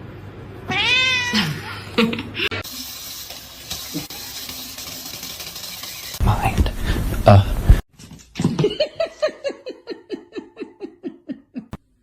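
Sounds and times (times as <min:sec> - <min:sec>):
cat meowing: 0:00.7 - 0:01.6
running water: 0:02.5 - 0:06.7.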